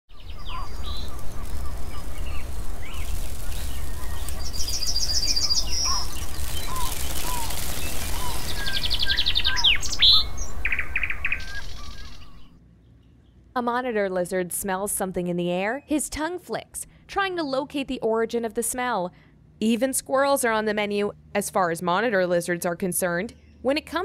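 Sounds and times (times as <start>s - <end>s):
songbirds singing and chirping: 0.1s - 13.5s, 22.0s - 24.0s.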